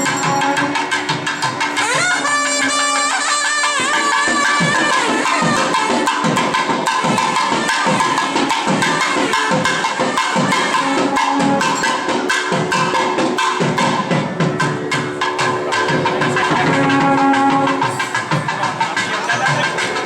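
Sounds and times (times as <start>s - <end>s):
reed pipe holding notes: 0.0s - 8.3s, 14.4s - 20.0s.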